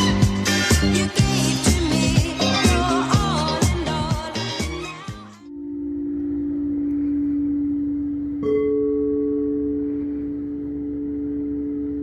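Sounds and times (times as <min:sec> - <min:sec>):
higher singing bowl ringing: 0:05.5 - 0:12.0
low singing bowl tone: 0:05.5 - 0:12.0.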